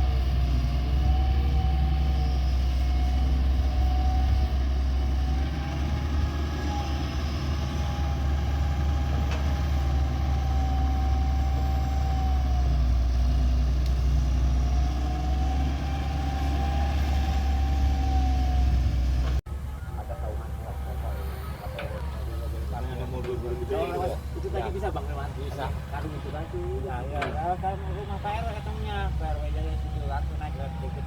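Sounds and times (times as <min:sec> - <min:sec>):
diesel engine rumbling: 0:00.0 - 0:31.0.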